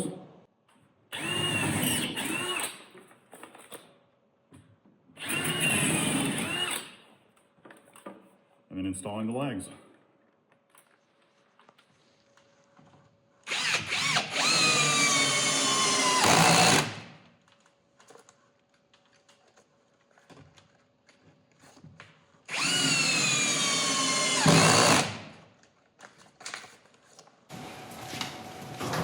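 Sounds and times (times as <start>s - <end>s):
power drill driving screws into wood: 1.1s - 2.9s, 5.2s - 7.0s, 13.4s - 17.2s, 22.5s - 25.4s.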